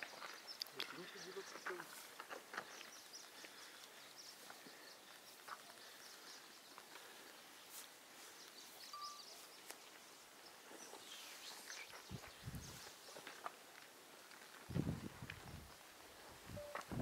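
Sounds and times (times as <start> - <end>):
faint bird chirps: 8.4 - 13.2.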